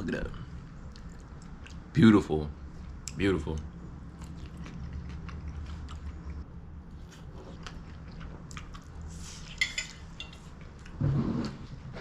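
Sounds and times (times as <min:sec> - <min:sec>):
low hum: 0:00.0 - 0:12.0
person chewing crunchy food: 0:00.6 - 0:01.9, 0:02.8 - 0:11.0.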